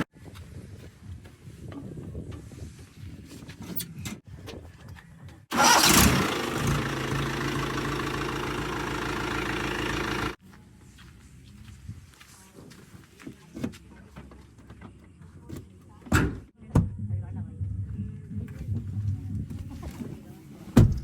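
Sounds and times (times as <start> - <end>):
engine starting and running loudly: 5.5 - 10.4
faint diesel engine: 5.5 - 11.8.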